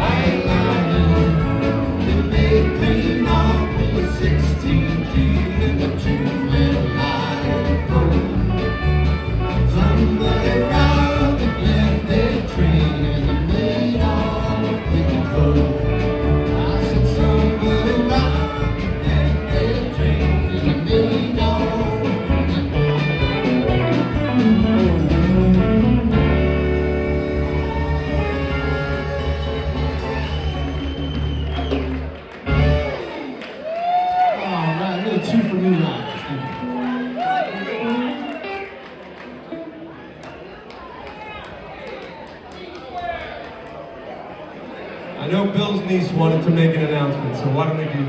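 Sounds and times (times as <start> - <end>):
person singing: 0.0 - 29.6
live country-rock band: 0.0 - 39.9.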